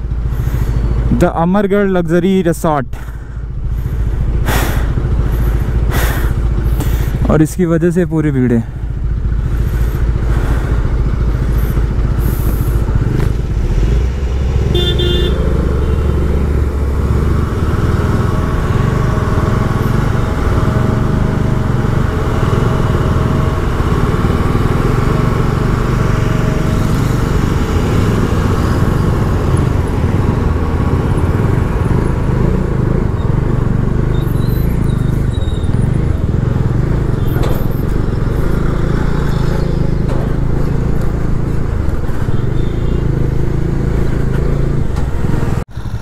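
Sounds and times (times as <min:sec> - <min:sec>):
motorcycle engine rumbling: 0:00.0 - 0:46.0
vehicle horn toot: 0:14.7 - 0:16.2, 0:42.2 - 0:43.1.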